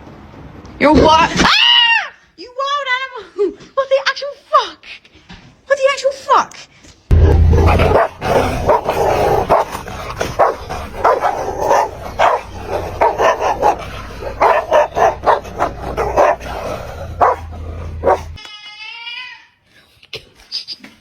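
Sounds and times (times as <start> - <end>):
dog barking: 7.6 - 18.4.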